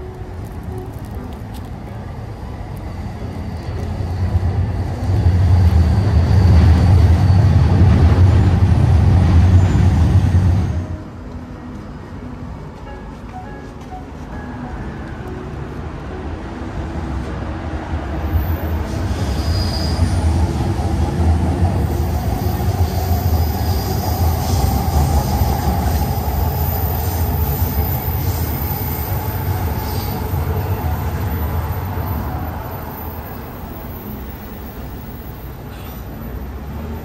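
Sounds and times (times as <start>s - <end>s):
train passing rumble: 0.0s - 37.0s
brief high squeals: 19.1s - 20.2s.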